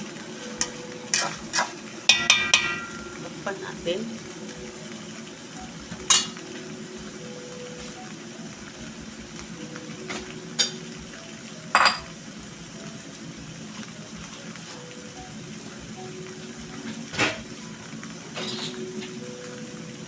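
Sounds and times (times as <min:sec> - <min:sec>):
chicken sizzling in pan: 0:00.0 - 0:20.0
metal lid clanking on pot: 0:00.6 - 0:03.3, 0:11.7 - 0:12.1.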